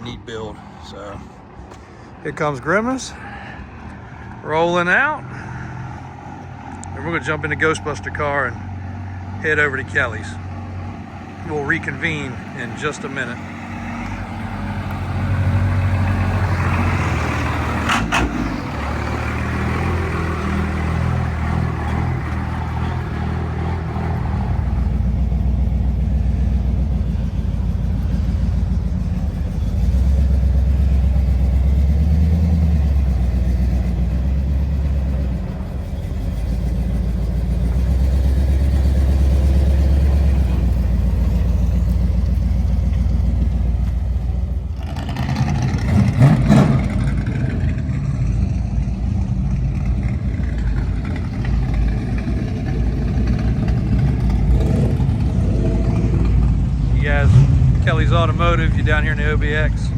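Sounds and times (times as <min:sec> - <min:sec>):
car engine rumbling: 0:00.0 - 0:59.9.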